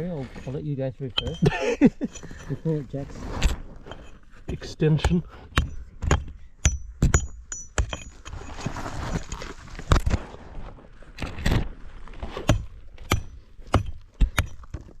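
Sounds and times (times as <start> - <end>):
knocks and clinks of stone: 0.4 - 2.7, 3.4 - 10.0, 12.4 - 15.0
rattle of loose rocks shifting: 7.1 - 15.0.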